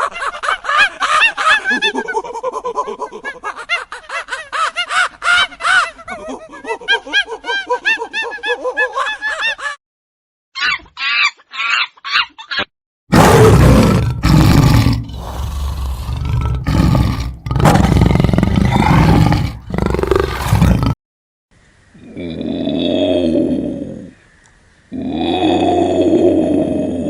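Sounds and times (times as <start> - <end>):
large animal roaring: 13.1 - 21.0, 22.0 - 24.1, 24.9 - 27.0.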